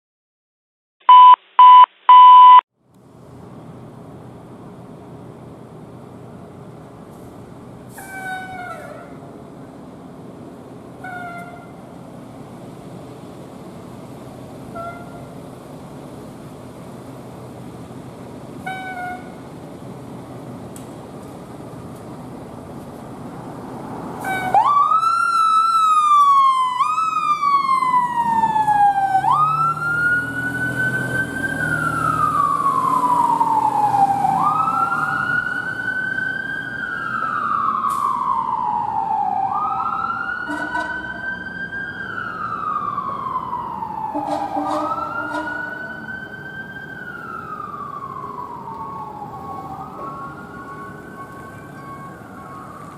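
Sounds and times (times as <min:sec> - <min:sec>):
fire engine siren wailing: 0:07.9 - 0:09.4, 0:14.6 - 0:15.4, 0:18.6 - 0:19.6, 0:23.2 - 0:52.9.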